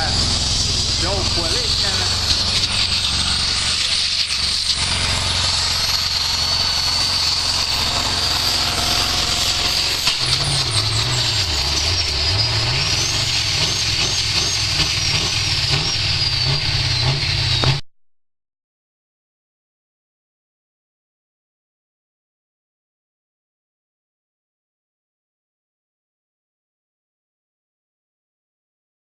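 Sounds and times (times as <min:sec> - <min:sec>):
diesel truck engine under load: 0:00.0 - 0:17.8
steady high whine: 0:00.0 - 0:17.8.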